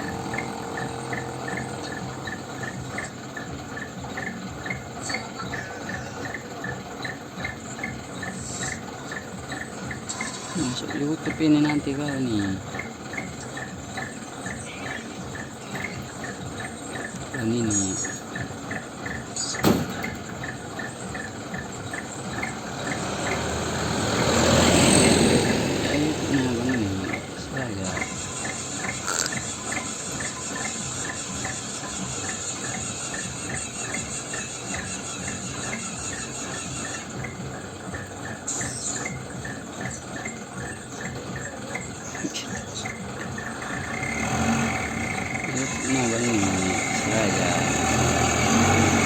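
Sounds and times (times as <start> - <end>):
crickets chirping: 0.0 - 49.0
vehicle approaching: 0.0 - 49.0
high steady insect buzz: 28.0 - 30.4.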